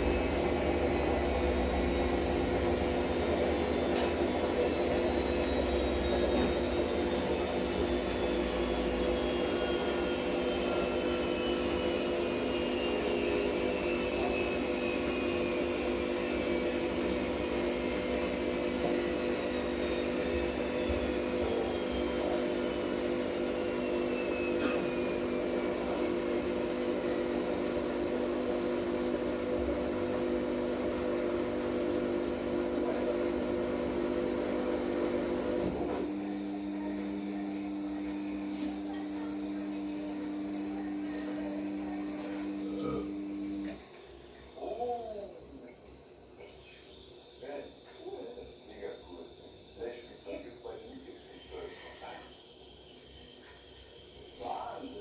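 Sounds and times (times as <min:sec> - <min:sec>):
washing machine spinning: 0:00.0 - 0:50.4.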